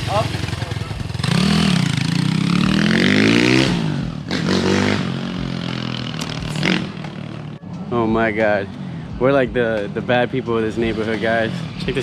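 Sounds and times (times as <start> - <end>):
motorbike engine revving: 0.0 - 7.6.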